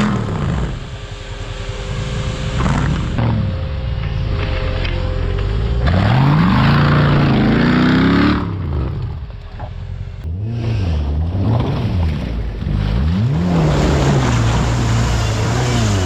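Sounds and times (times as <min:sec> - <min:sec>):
vehicle engine revving hard: 0:00.0 - 0:01.1, 0:05.4 - 0:09.2, 0:10.2 - 0:16.0.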